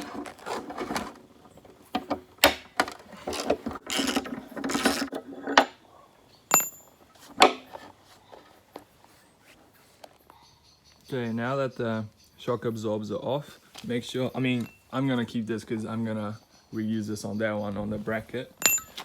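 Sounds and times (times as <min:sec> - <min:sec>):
plastic knocking and scraping: 0:00.0 - 0:05.7
metallic clink: 0:06.5 - 0:07.0, 0:14.6 - 0:14.9, 0:18.6 - 0:19.0.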